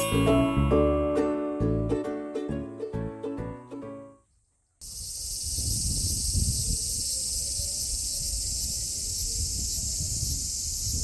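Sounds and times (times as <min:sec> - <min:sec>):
cicadas singing: 0:04.8 - 0:11.0.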